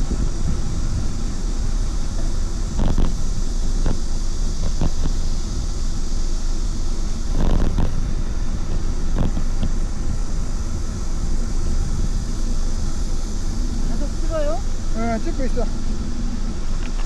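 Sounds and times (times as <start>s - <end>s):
wind and road rumble: 0.0s - 17.0s
bicycle knocks and rattles: 8.6s - 10.0s.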